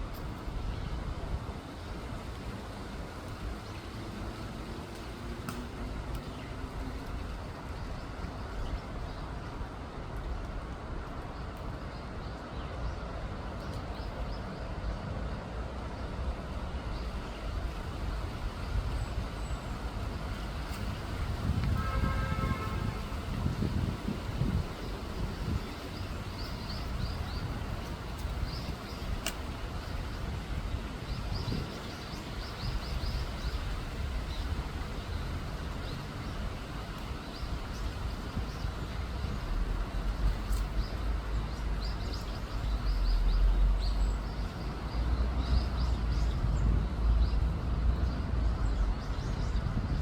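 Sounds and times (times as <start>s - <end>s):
distant road traffic rumble: 0.0s - 50.0s
faint high ticks: 4.9s - 6.4s, 29.2s - 29.5s.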